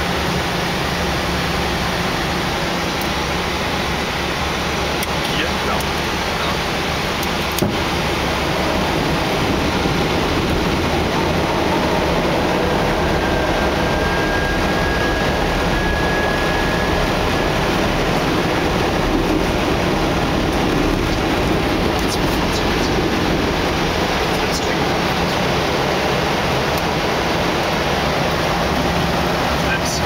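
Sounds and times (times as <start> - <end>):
airflow and engine noise: 0.0 - 30.0
faint high steady tone: 12.8 - 18.1.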